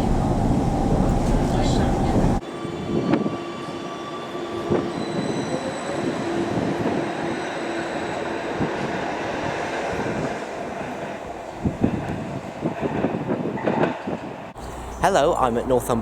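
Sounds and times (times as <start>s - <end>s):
train rumbling on rails: 0.0s - 16.0s
high wheel squeal: 1.4s - 8.6s.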